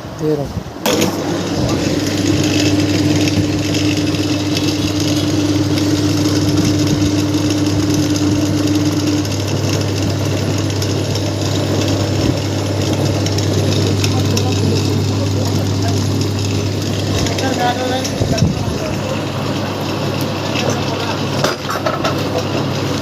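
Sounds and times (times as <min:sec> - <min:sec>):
steady hum: 0:00.6 - 0:21.4.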